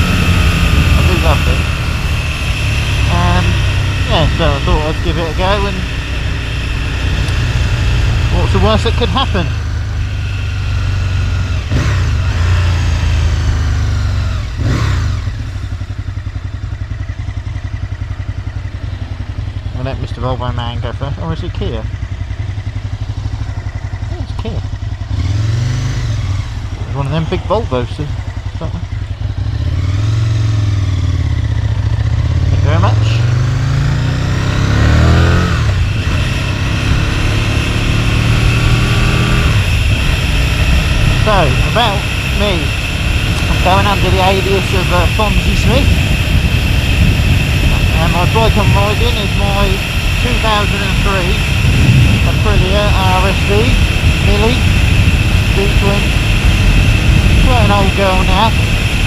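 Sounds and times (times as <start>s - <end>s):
motorcycle engine idling: 0.0s - 59.0s
passing traffic whooshes: 49.4s - 59.0s.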